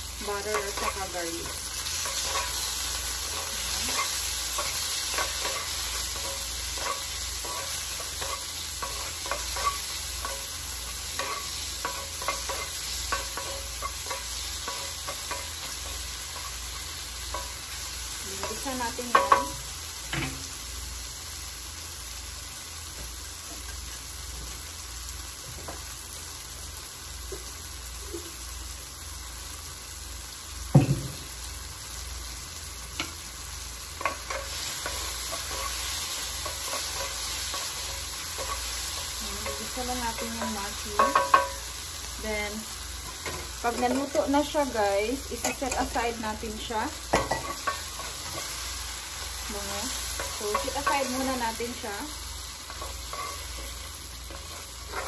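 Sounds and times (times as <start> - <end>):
mushrooms sizzling in a pan: 0.0 - 55.0
wooden spoon scraping a pan: 47.1 - 55.0.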